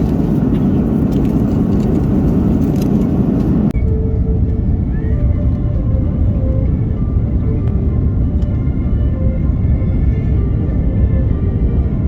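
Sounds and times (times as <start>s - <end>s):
moving vehicle rumble: 0.0s - 12.0s
faint music notes: 3.7s - 12.0s.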